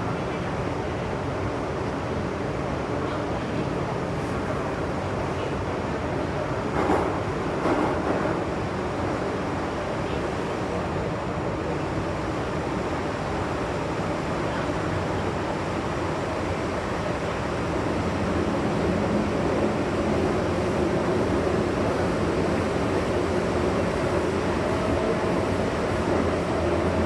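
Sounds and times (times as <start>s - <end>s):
train wheels rumbling on rails: 6.6s - 8.6s, 17.0s - 27.0s.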